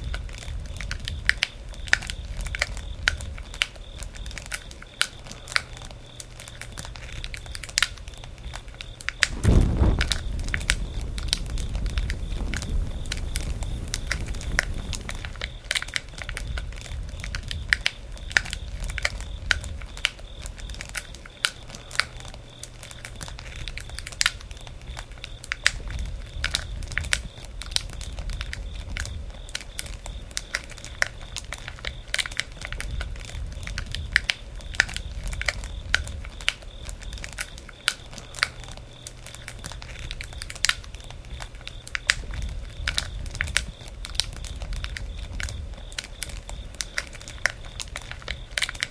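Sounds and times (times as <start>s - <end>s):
campfire crackling and popping: 9.2s - 15.5s
low fire rumble: 9.2s - 15.6s.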